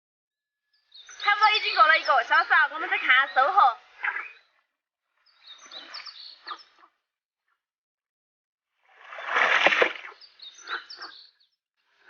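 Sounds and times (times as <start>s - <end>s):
high bird chirps: 5.2s - 6.9s.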